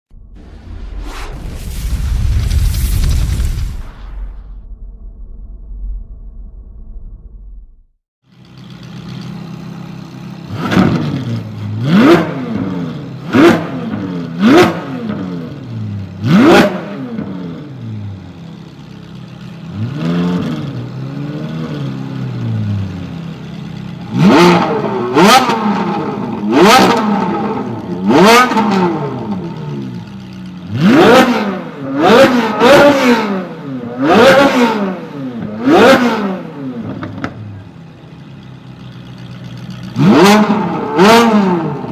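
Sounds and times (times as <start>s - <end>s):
car engine revving: 10.5s - 15.5s, 24.1s - 37.3s, 39.8s - 41.9s.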